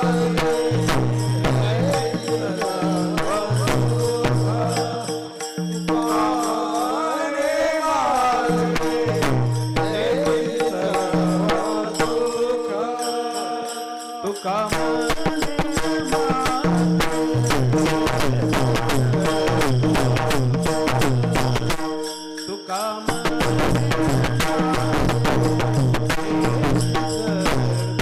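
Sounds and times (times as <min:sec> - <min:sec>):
sustained drone tones: 0:00.0 - 0:07.6
person singing devotional song: 0:00.0 - 0:28.0.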